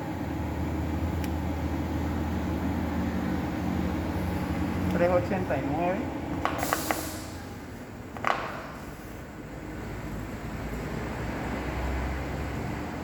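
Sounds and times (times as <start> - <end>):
low mechanical hum: 0.0 - 13.0
short hiss: 6.6 - 7.4.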